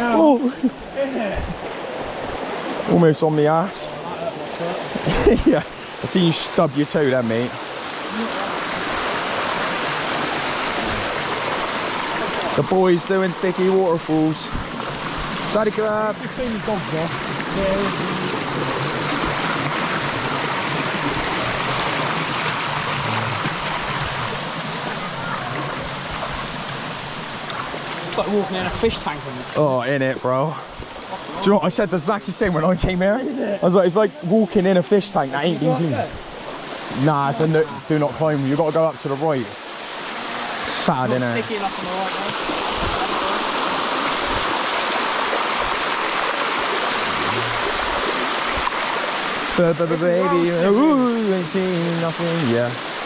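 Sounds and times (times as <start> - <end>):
water rushing over rock: 0.9 - 33.1, 35.2 - 53.0.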